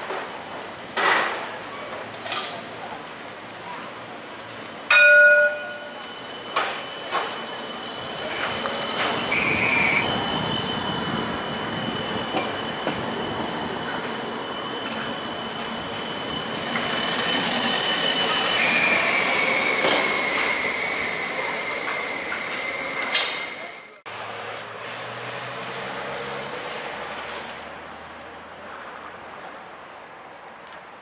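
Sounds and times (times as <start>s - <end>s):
tram wheel squeal: 0.0s - 24.0s
tram rolling noise: 0.0s - 31.0s.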